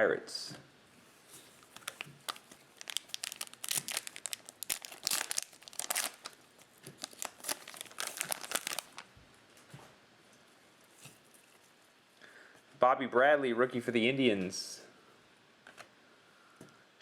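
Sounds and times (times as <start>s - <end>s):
foil wrapper crinkling and tearing: 1.6s - 9.1s.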